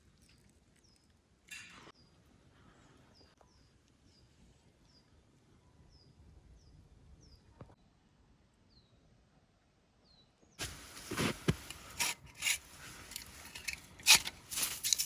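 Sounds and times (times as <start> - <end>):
brief rustle: 10.6 - 15.0.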